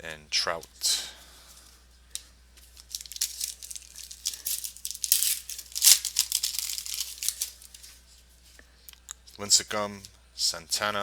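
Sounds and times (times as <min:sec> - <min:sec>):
trading cards shuffled by hand: 0:02.6 - 0:08.0.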